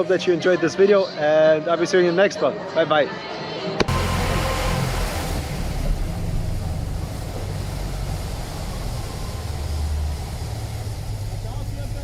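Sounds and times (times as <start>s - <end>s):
car engine rumbling: 3.8s - 12.0s.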